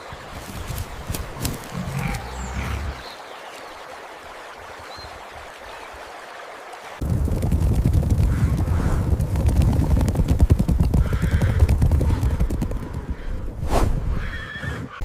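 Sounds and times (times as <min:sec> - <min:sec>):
rumble of hoofbeats: 0:07.0 - 0:13.6.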